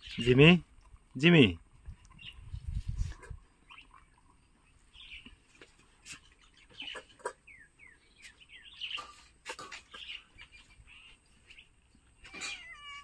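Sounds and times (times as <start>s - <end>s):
bird chirps: 6.0s - 12.8s.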